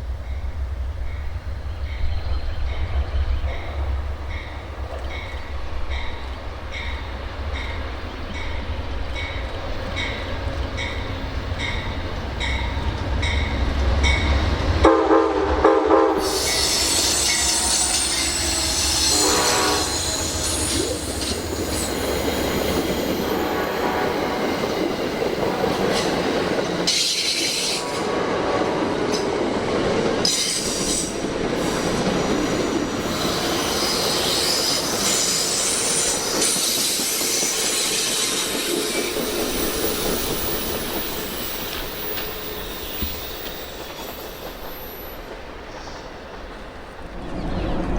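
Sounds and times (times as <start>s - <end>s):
wheel and rail noise: 0.0s - 14.9s, 16.1s - 47.9s
train horn: 14.8s - 21.0s, 22.8s - 26.2s, 27.6s - 29.3s
squealing train wheels: 16.1s - 47.9s.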